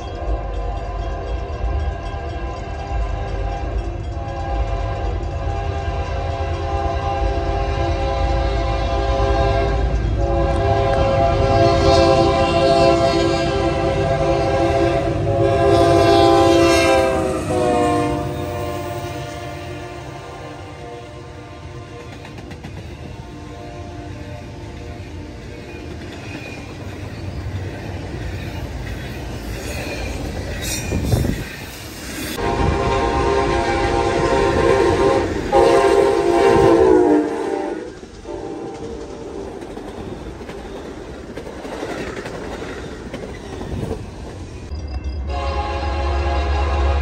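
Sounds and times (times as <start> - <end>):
freight train wheel clatter: 0.0 - 7.9, 21.2 - 45.2
deep train rumble: 0.0 - 47.0
train air horn blasts: 0.3 - 22.4, 23.0 - 25.6, 32.3 - 39.6, 45.2 - 47.0.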